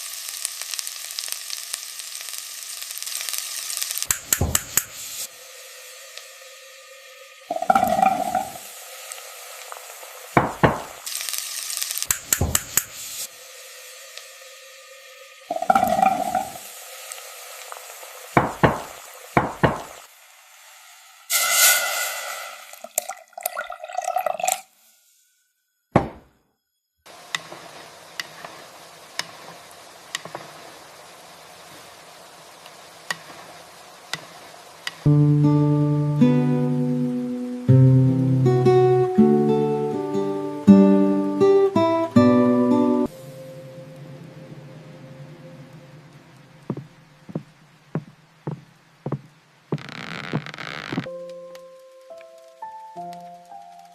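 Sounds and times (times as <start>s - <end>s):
steady rain: 0.0s - 21.4s, 27.1s - 53.9s
brief sizzle: 0.0s - 23.1s
steady background hiss: 0.0s - 53.9s
running water: 4.2s - 20.1s, 22.2s - 24.7s, 45.5s - 51.1s
water dripping: 6.0s - 11.2s, 12.0s - 13.0s, 15.0s - 20.1s, 22.7s - 24.7s, 46.6s - 53.7s
loud thump: 26.0s - 26.3s.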